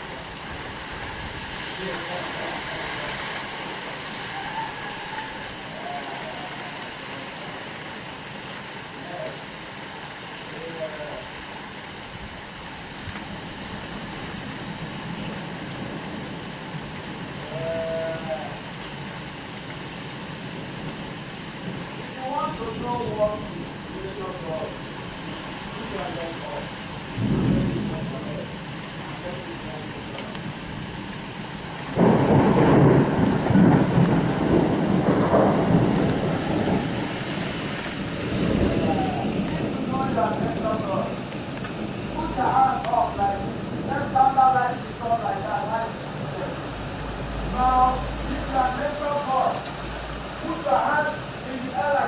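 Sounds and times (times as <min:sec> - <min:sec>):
rain falling: 0:00.0 - 0:52.0
thunder clap and rumble: 0:26.0 - 0:44.8.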